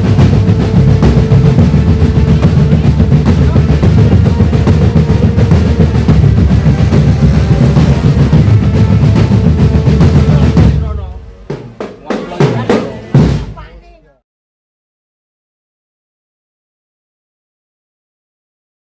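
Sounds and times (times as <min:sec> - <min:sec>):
marching drum band playing: 0:00.0 - 0:14.0.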